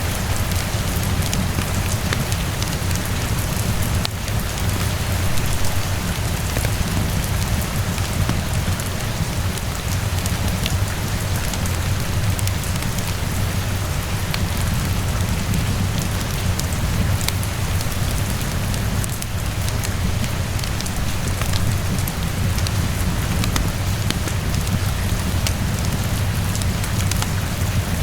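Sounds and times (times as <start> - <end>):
steady rainfall: 0.0 - 28.0
fireplace crackles: 14.3 - 28.0.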